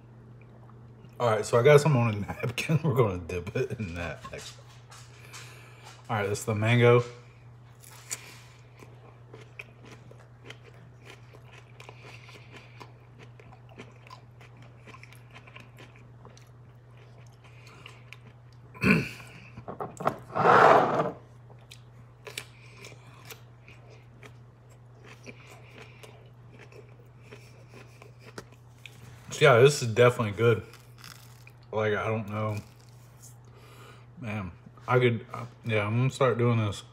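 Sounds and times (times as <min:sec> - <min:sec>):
person chewing soft fruit: 0:00.0 - 0:01.2, 0:07.2 - 0:19.7, 0:21.2 - 0:29.4, 0:30.4 - 0:34.8
low steady hum: 0:00.0 - 0:36.9.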